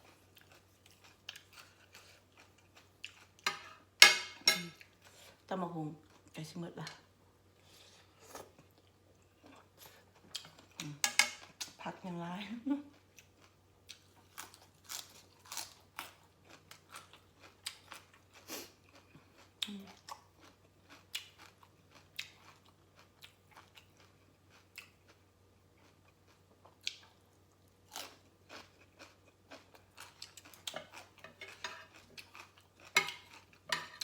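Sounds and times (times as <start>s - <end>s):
person chewing crunchy food: 0.0s - 3.4s, 12.9s - 34.0s.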